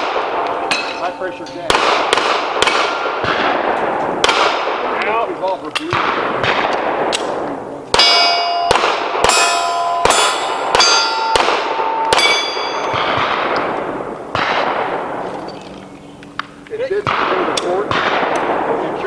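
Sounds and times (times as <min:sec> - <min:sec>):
pistol shots echoing: 0:00.0 - 0:19.0
bullets clanging on steel targets: 0:00.4 - 0:01.8, 0:08.0 - 0:13.7.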